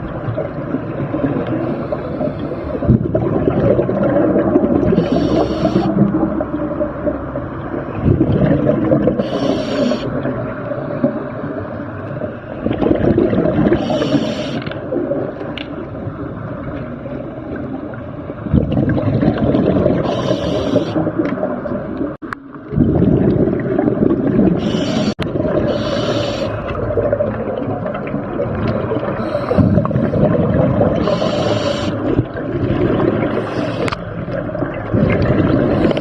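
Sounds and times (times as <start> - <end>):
gurgling exhaled bubbles: 0.0 - 36.0
regulator inhale hiss: 5.0 - 5.9, 9.2 - 10.1, 13.8 - 14.7, 20.0 - 21.0, 24.6 - 26.6, 29.2 - 29.9, 31.0 - 32.0, 33.4 - 34.0.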